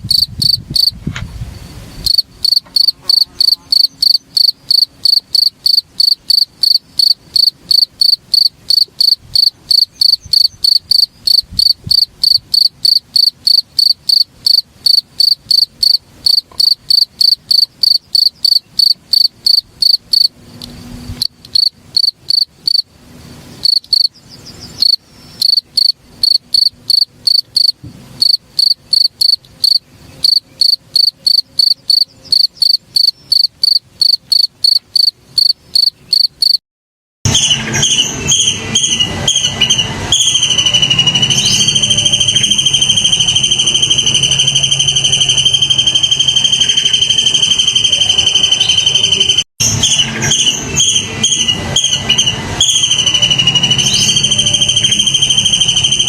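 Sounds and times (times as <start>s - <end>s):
insect high chirps: 0.1s - 1.0s, 1.6s - 22.9s, 23.6s - 24.2s, 24.8s - 36.6s.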